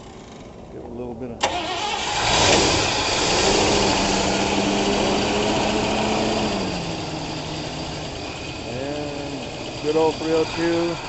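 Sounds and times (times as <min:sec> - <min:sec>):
car engine running fast: 0:02.2 - 0:11.0.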